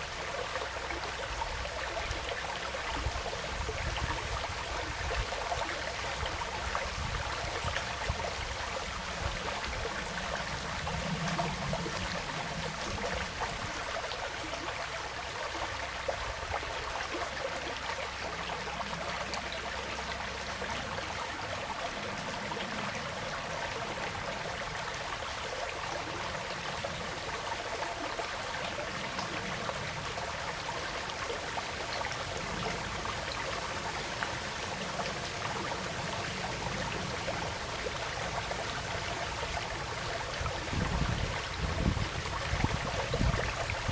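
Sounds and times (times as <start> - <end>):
forest stream flowing: 0.0 - 43.9.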